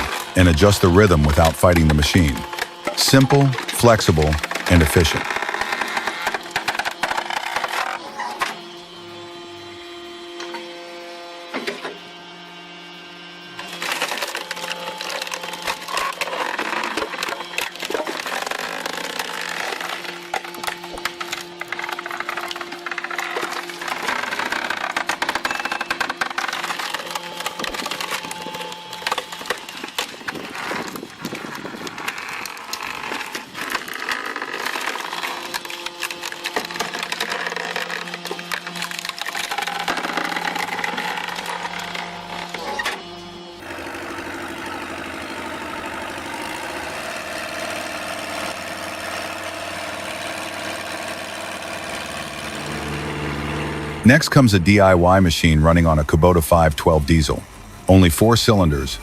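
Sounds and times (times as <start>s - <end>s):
wood cracking and splintering: 0.0s - 8.6s, 13.6s - 54.2s
steady machine hum: 0.0s - 59.0s
engine running steadily: 40.4s - 55.4s.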